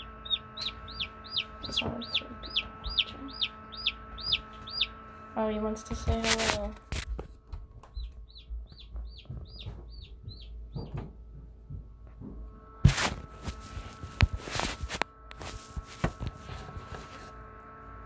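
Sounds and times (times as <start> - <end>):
chick peeping: 0.0 - 6.8, 7.8 - 11.0
incubator fan hum: 0.0 - 18.0
loud rustling: 12.8 - 17.4.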